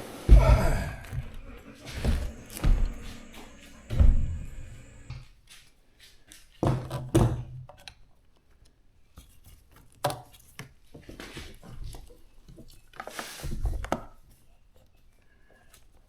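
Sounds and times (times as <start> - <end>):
knocks and thuds: 0.3 - 5.2
quiet handling noise: 1.0 - 5.3.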